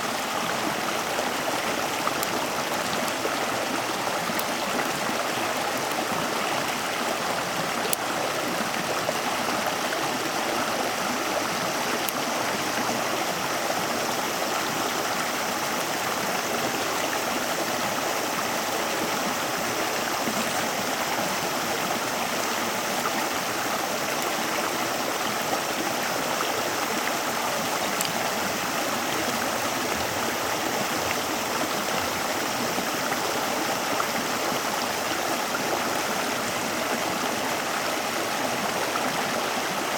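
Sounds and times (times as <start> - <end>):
stream flowing: 0.0 - 39.9
faint clicks: 27.9 - 28.3.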